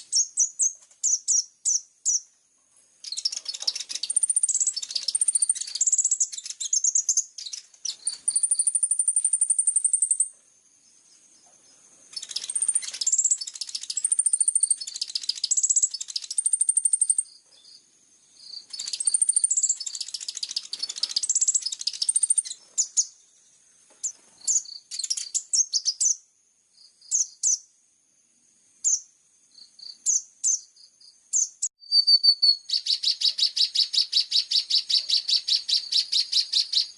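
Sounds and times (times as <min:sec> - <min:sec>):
lark song with chirps and whistles: 0:00.0 - 0:27.8, 0:28.8 - 0:36.9
fast even bird trill: 0:03.1 - 0:10.3, 0:12.1 - 0:17.3, 0:18.6 - 0:23.0, 0:31.4 - 0:36.9
short bird calls: 0:31.3 - 0:36.9.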